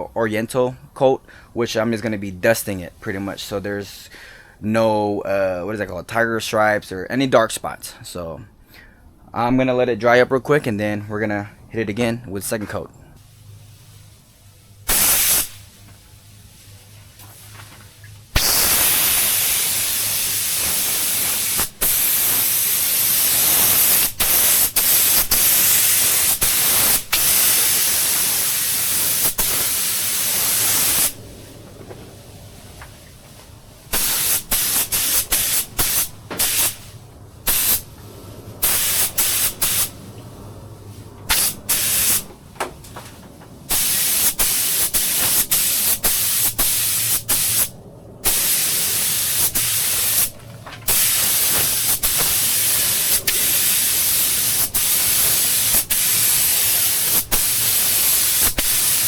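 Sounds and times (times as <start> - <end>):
paint spray gun hissing: 14.9 - 15.6, 18.4 - 31.2, 33.9 - 38.0, 38.6 - 40.0, 41.3 - 42.3, 43.7 - 59.0.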